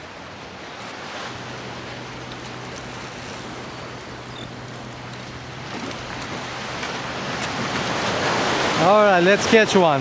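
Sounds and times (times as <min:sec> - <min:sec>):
surf: 0:00.0 - 0:10.0
wind: 0:00.0 - 0:10.0
low hum: 0:01.3 - 0:08.0.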